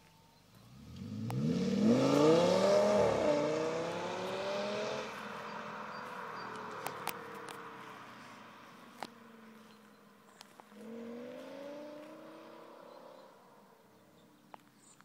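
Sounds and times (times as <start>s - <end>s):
car engine accelerating past: 0.6s - 14.3s.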